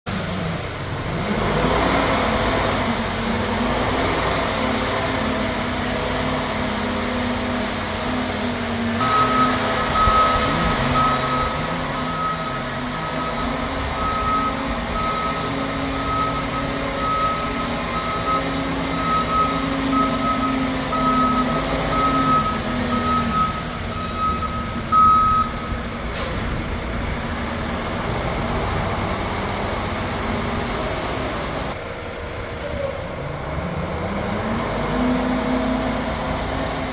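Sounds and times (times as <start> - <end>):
truck engine running: 0.1 - 36.9
backup alarm beeping: 9.0 - 25.7.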